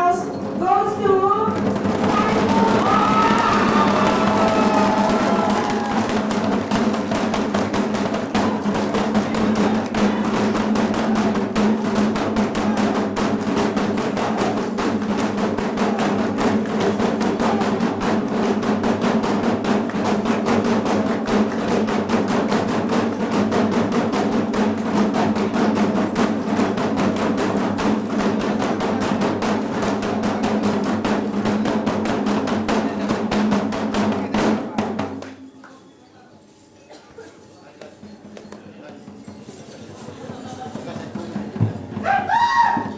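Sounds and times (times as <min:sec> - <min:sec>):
snare drum roll: 0:01.5 - 0:35.2.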